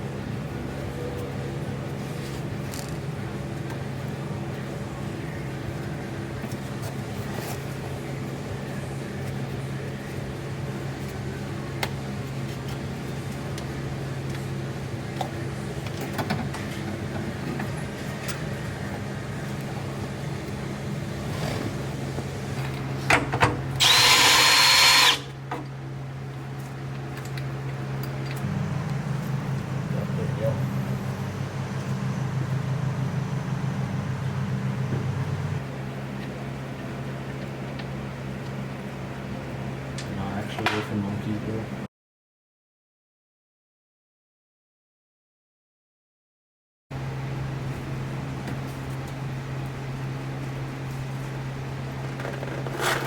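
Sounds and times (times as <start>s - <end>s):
power drill whining: 23.8s - 25.4s
low hum: 28.2s - 36.0s.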